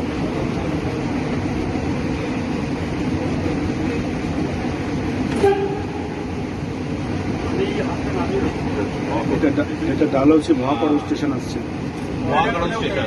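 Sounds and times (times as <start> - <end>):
train rumble and rail noise: 0.0 - 13.0
train horn toot: 5.3 - 6.3.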